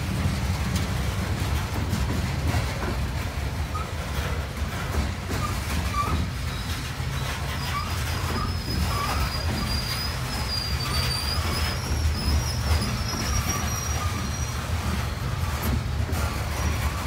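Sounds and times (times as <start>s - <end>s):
freight train wheels rumbling: 0.0s - 17.0s
high wheel squeal: 3.6s - 17.0s.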